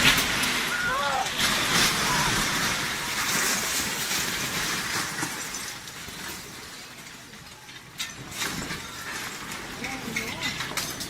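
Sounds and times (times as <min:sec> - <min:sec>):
glass shattering: 0:01.4 - 0:07.0, 0:07.9 - 0:11.0.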